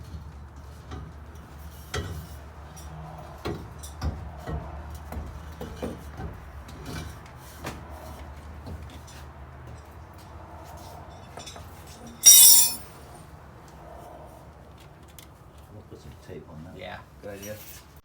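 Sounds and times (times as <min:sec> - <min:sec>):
metal tools clunking: 0:12.2 - 0:12.9.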